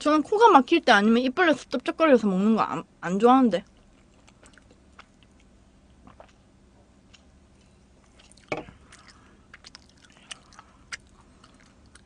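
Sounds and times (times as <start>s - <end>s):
wet chewing clicks: 3.6s - 12.0s
person drinking: 6.0s - 6.5s, 7.1s - 12.0s.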